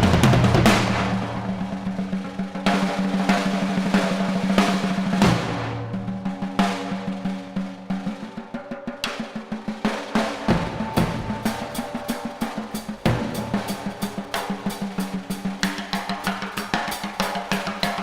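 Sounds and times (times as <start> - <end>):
drum kit solo: 0.0 - 18.0
cymbal crashes: 10.2 - 18.0.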